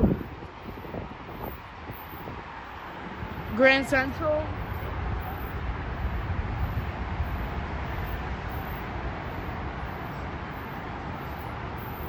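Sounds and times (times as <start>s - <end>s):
train approaching: 0.0s - 12.0s.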